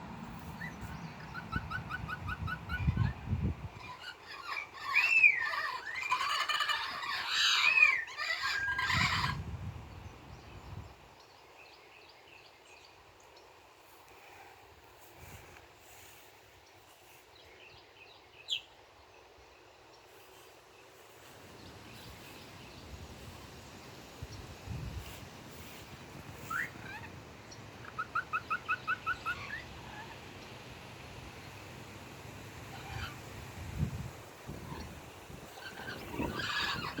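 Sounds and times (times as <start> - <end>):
bird calling: 0.4 - 9.4, 25.5 - 31.7, 32.6 - 33.4, 34.5 - 37.0
parrots squawking and whistling: 3.8 - 9.4, 26.4 - 27.1, 27.8 - 30.2, 32.7 - 33.2, 35.6 - 37.0.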